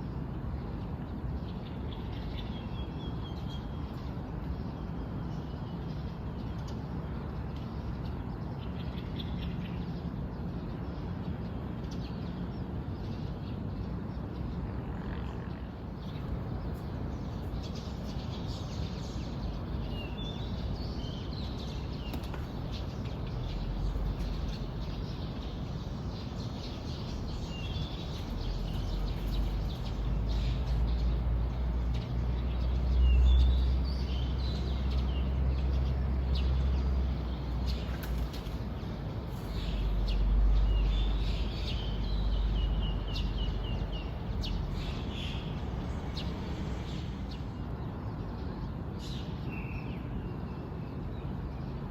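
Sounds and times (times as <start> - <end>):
small birds chirping: 15.5 - 49.8
steady low rumble: 15.7 - 47.4.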